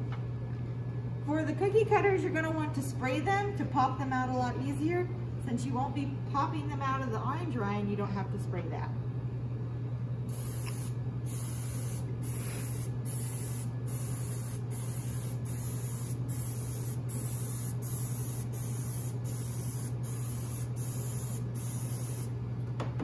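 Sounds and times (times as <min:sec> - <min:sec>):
steady low hum: 0:00.0 - 0:23.0
aerosol spray can hissing: 0:10.3 - 0:22.3.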